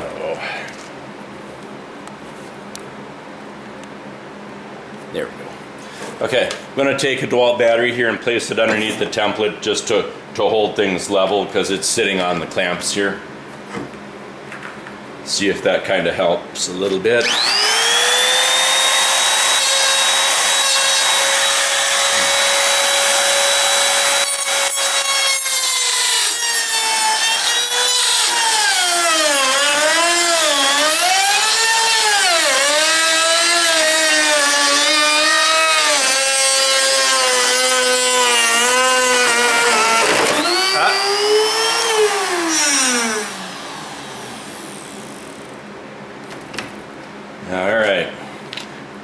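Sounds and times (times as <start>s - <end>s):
electric router whining: 17.2s - 45.6s.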